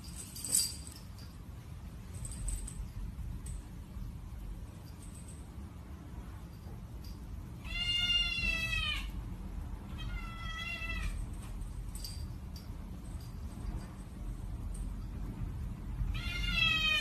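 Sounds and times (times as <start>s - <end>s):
cat meowing: 7.6s - 9.2s, 9.9s - 11.2s, 16.1s - 17.0s.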